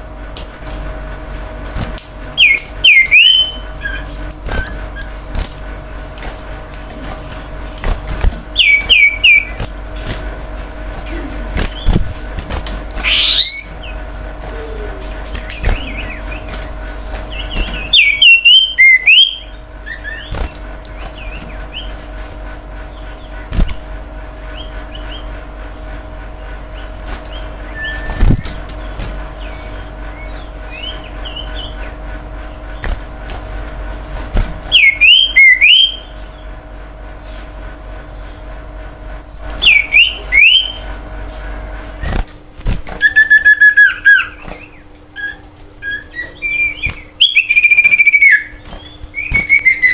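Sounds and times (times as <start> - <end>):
steady low hum: 0.0 - 49.9
bird singing whistled notes: 2.4 - 4.0, 8.6 - 9.6, 13.0 - 14.0, 17.4 - 20.3, 34.8 - 36.1, 39.6 - 40.8, 43.0 - 49.9
soft bird calls: 2.4 - 4.8, 8.6 - 9.6, 13.0 - 16.6, 17.3 - 22.0.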